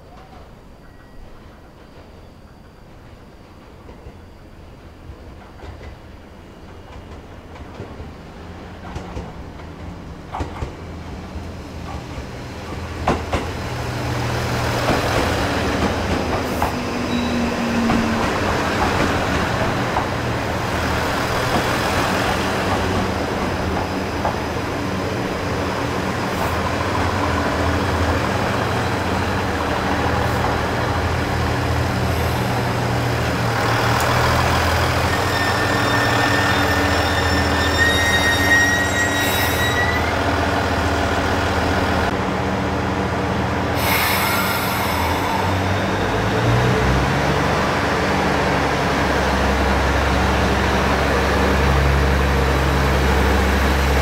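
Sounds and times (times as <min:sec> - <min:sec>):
train engine drone: 0:00.0 - 0:54.0
train wheels clicking over rail joints: 0:08.7 - 0:11.2.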